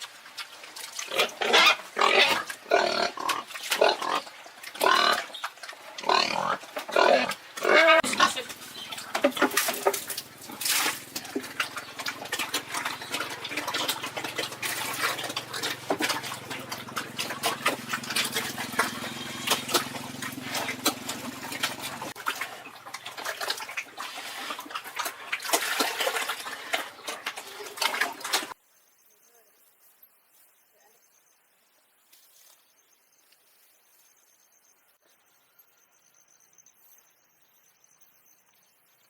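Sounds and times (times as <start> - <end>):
pigs slurping and chomping: 0.0 - 28.6
low steady hum: 8.0 - 22.2.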